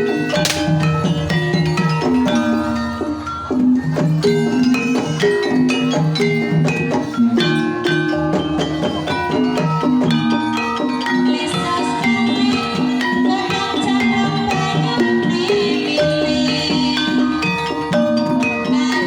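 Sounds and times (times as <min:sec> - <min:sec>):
mallet-struck keyed instruments: 0:00.0 - 0:19.0
drum strokes: 0:00.3 - 0:02.4.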